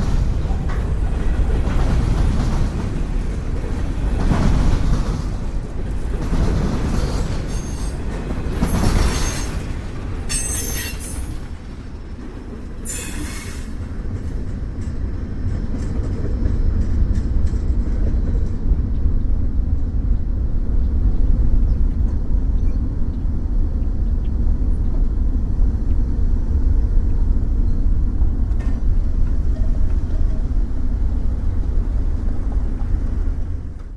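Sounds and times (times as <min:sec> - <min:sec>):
freight train rolling past: 0:00.0 - 0:33.9
wheels squealing on rail: 0:06.3 - 0:11.7, 0:12.8 - 0:14.0.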